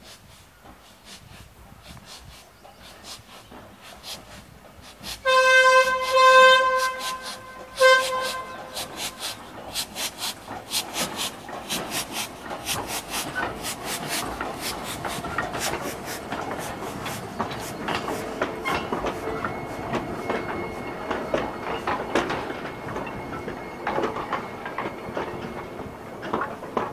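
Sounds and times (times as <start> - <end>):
train wheels clicking over rail joints: 0.0 - 26.9
locomotive warning toot: 5.1 - 10.0.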